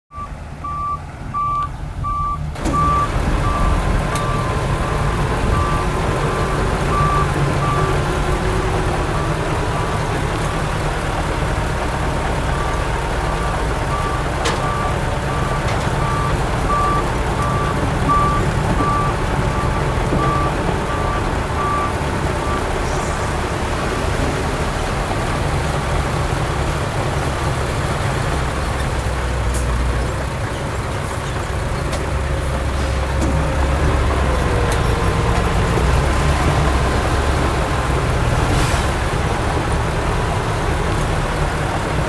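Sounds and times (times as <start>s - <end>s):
reversing alarm beeping: 0.1s - 8.0s, 13.3s - 22.7s
diesel engine running: 0.1s - 42.0s.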